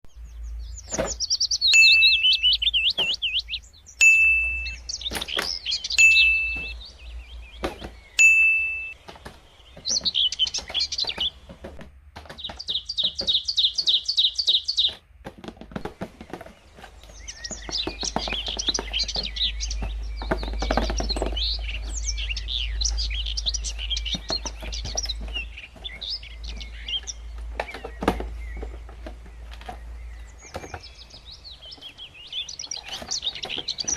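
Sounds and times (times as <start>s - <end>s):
birds chirping and singing: 0.0s - 33.9s
sharp knocks: 7.6s - 13.9s.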